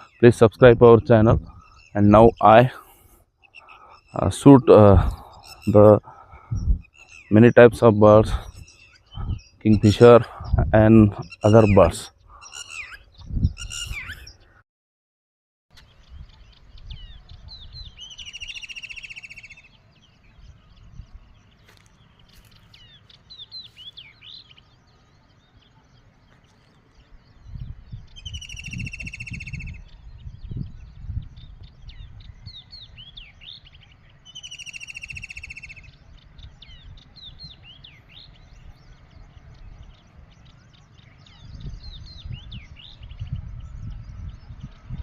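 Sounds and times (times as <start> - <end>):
wild birds chirping: 0.0 - 14.6, 15.7 - 45.0
bird trilling: 3.4 - 7.6, 11.2 - 14.6, 16.3 - 20.9, 28.1 - 30.1, 31.9 - 39.0.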